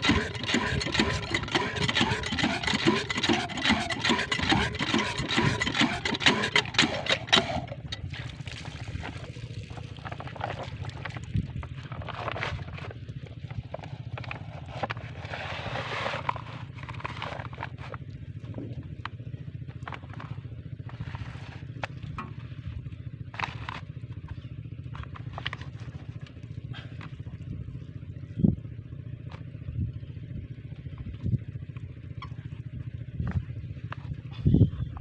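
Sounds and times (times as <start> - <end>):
diesel water pump engine: 0.0 - 35.0.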